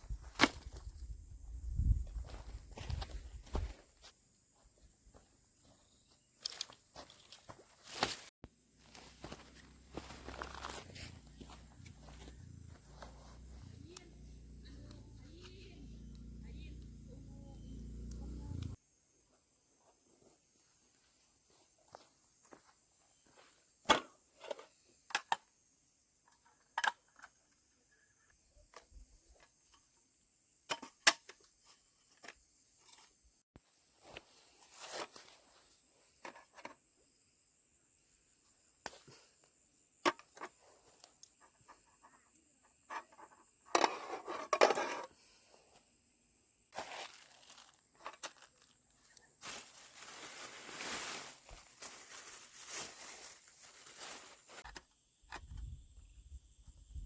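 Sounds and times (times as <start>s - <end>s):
rustling: 46.8s - 54.7s.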